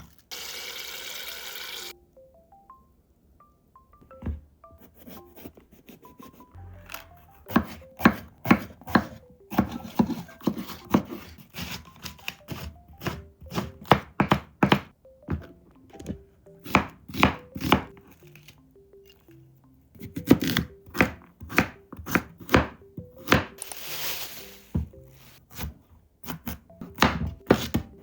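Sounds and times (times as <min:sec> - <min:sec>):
soft melodic background music: 0:01.9 - 0:28.0
knife chopping on a cutting board: 0:07.5 - 0:18.0, 0:20.0 - 0:23.6, 0:24.7 - 0:28.0.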